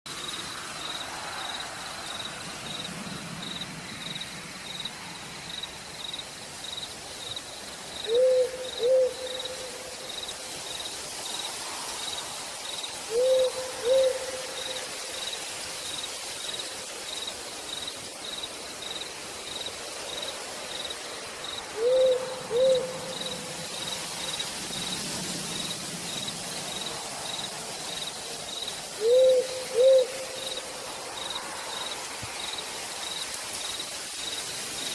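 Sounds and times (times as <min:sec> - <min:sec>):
insect chirping faintly: 0:00.1 - 0:34.9
steady rain in forest: 0:00.1 - 0:34.9
owl hooting: 0:08.0 - 0:09.9, 0:13.1 - 0:14.8, 0:21.7 - 0:23.4, 0:29.0 - 0:30.6.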